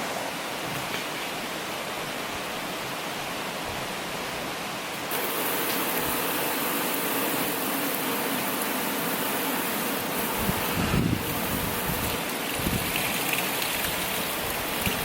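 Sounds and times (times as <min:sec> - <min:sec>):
steady rushing noise: 0:09.9 - 0:13.0.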